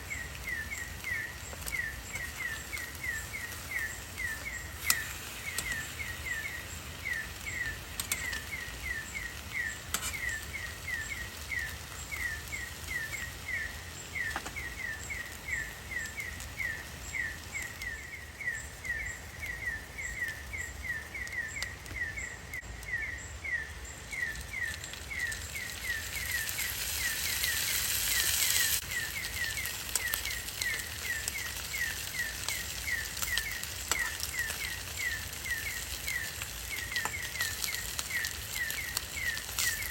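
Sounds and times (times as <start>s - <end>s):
rushing hiss: 25.5s - 32.2s.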